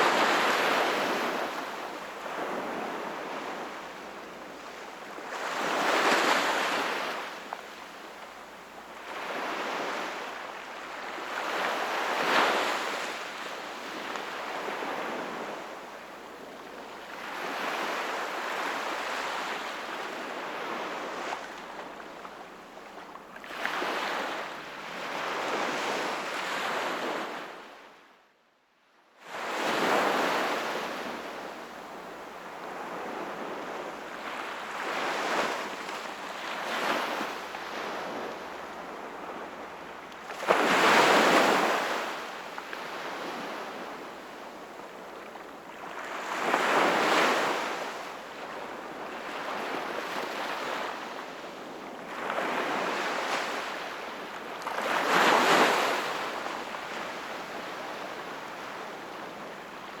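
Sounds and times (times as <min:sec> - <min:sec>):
sea waves breaking on shore: 0:00.0 - 0:07.8, 0:29.4 - 1:00.0.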